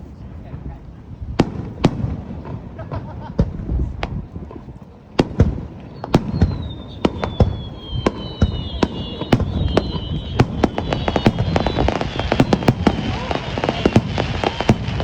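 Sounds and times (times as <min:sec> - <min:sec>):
fireworks bangs and crackling: 0:00.0 - 0:15.0
fireworks whistling: 0:05.3 - 0:15.0.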